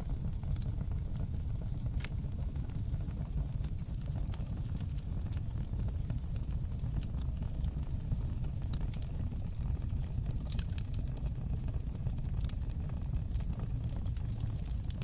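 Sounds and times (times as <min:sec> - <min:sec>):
fire crackling and popping: 0:00.0 - 0:15.0
fire rumbling: 0:00.0 - 0:15.0.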